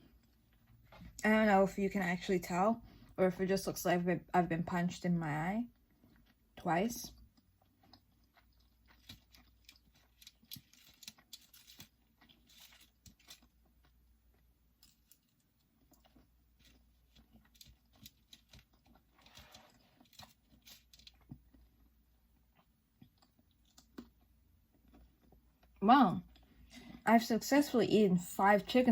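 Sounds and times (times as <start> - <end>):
person chewing: 0.0 - 1.2, 5.8 - 26.9
low steady hum: 0.0 - 28.9.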